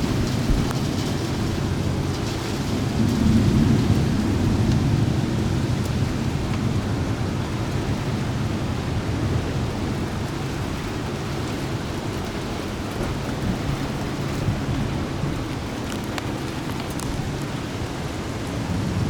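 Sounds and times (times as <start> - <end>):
low rumble of thunder: 0.0 - 19.0
steady rain: 0.0 - 19.0.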